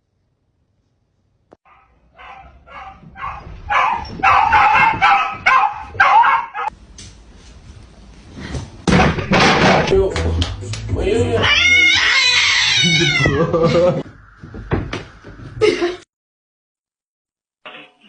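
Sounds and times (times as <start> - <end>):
dog barking: 1.7 - 6.7.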